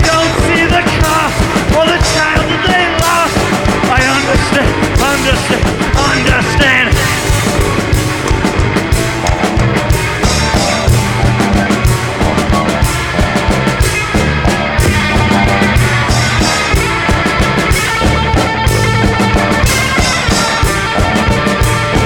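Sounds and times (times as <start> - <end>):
drum kit beat: 0.0 - 22.0
rock band instrumental: 0.0 - 22.0.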